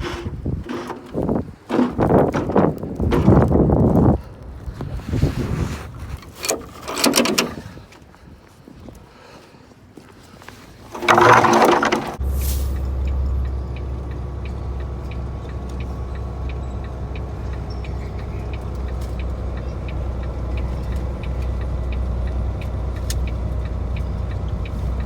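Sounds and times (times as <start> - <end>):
diesel truck engine running: 11.0 - 25.0
light regular ticking: 12.7 - 25.0.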